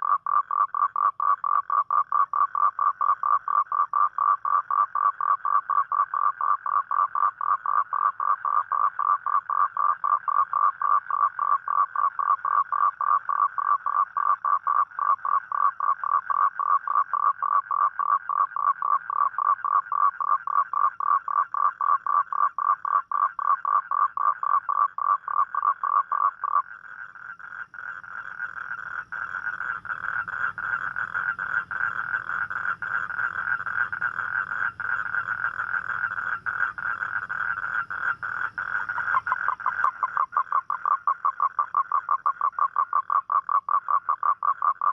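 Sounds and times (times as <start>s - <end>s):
toad pulsed trill: 27.4s - 44.9s.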